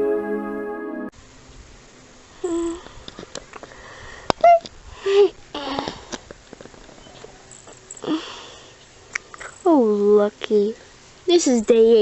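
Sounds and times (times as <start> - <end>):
woman humming and cooing: 2.4 - 3.0, 4.4 - 6.0
breathy sniffing: 8.0 - 9.6.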